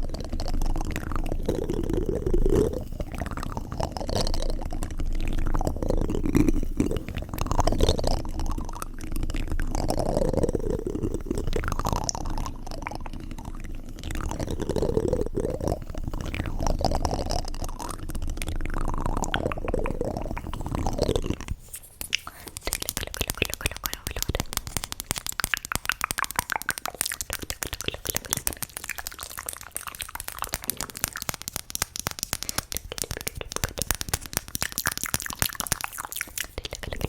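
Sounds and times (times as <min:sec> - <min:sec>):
wet sounds at microphone: 0:00.0 - 0:37.0.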